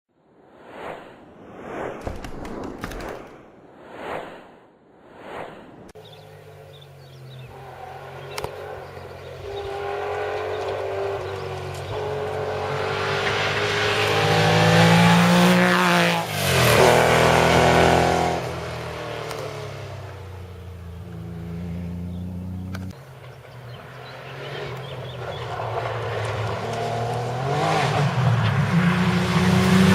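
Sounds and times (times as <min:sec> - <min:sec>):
rally car engine revving: 0:06.1 - 0:20.3, 0:23.7 - 0:29.9.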